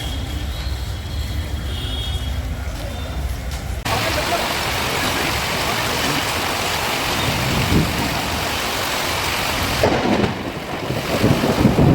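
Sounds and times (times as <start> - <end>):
heavy rain hissing: 3.8 - 11.9
wind on microphone: 7.0 - 8.5, 9.6 - 11.9.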